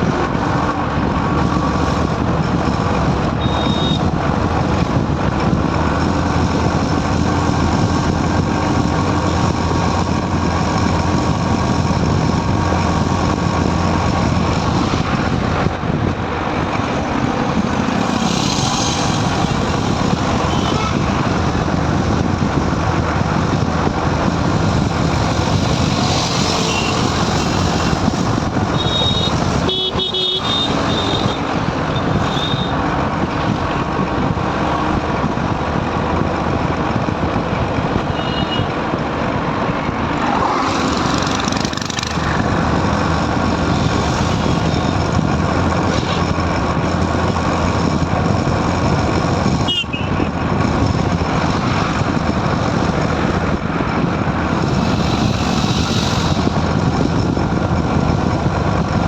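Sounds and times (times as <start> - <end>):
motorbike road and wind noise: 0.0 - 59.0.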